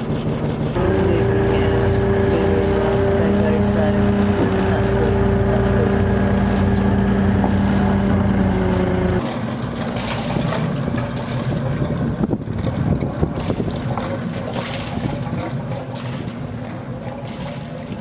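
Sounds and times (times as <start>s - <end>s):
boat motor idling: 0.0s - 9.2s.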